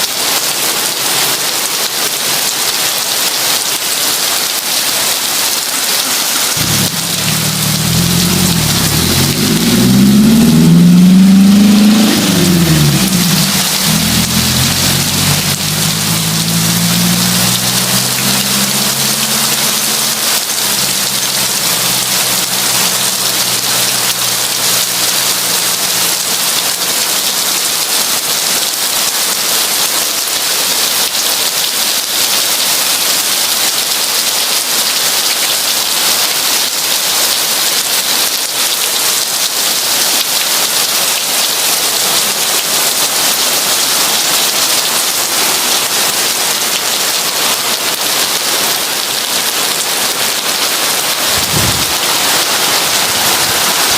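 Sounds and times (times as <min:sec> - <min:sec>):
heavy rain falling: 0:00.0 - 0:53.9
low rumble: 0:06.6 - 0:25.5, 0:51.3 - 0:52.2.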